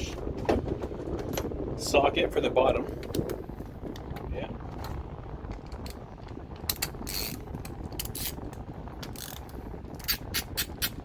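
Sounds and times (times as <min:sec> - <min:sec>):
socket ratchet clicking: 0:09.0 - 0:11.0.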